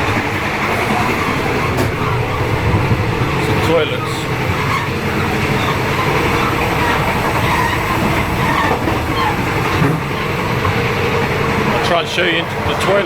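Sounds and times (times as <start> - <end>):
train coach rattling: 0.0 - 13.0
train wheels rumbling on rails: 0.0 - 13.0.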